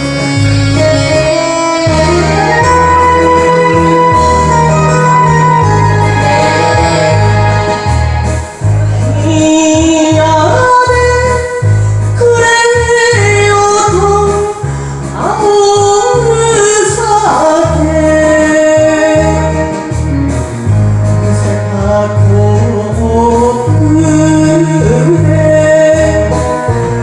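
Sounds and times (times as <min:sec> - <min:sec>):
instrumental backing with bass: 0:00.0 - 0:27.0
woman singing slow melody: 0:08.9 - 0:20.0, 0:21.3 - 0:27.0.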